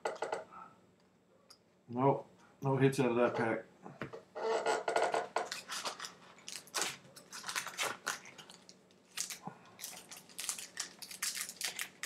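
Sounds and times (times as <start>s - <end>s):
card pack wrapper crinkling: 5.5s - 12.0s.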